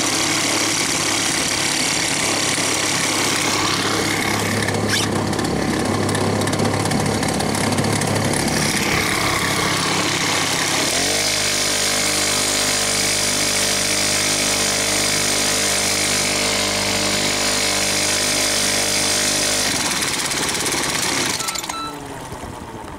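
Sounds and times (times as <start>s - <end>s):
small boat motor running: 0.0s - 22.9s.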